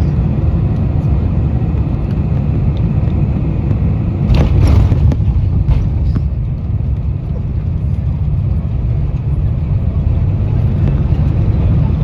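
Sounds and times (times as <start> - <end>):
aircraft engine and runway rumble: 0.0 - 12.0.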